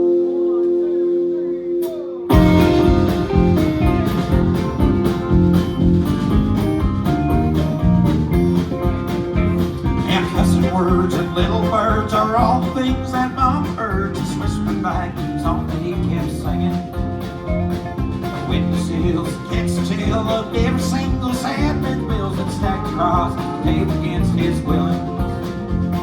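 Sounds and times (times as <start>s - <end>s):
wavering lead line: 0.0s - 14.0s
live country band playing: 1.8s - 26.0s
steady drum beat: 2.3s - 26.0s.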